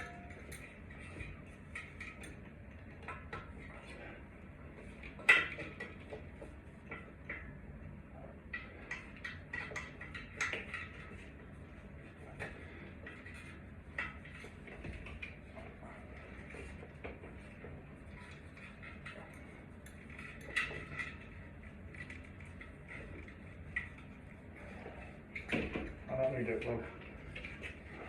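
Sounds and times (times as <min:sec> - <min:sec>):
metal parts and tools clinking: 0:00.0 - 0:02.4.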